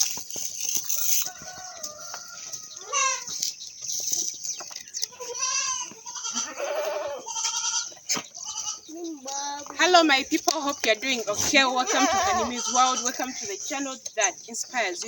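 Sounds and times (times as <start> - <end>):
goats bleating: 2.8 - 3.3, 5.1 - 9.6, 11.3 - 13.5.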